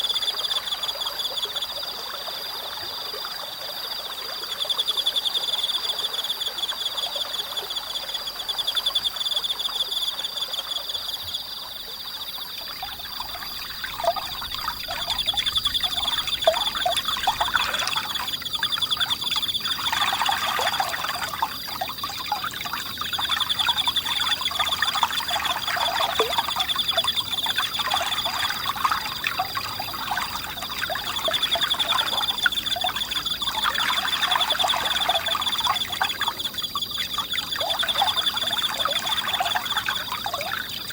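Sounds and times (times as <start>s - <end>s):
insects trilling: 0.0s - 40.9s
stream babbling: 12.5s - 36.3s.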